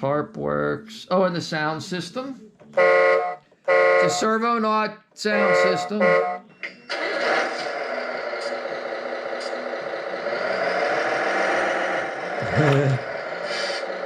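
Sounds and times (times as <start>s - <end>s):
simulated diesel truck engine: 6.9s - 14.0s.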